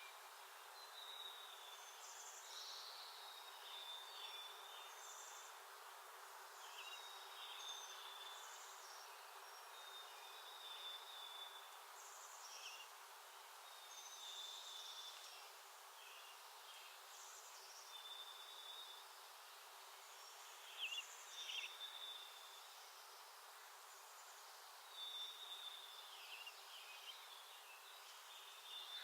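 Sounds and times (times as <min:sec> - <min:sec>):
steady outdoor hiss: 0:00.0 - 0:29.0.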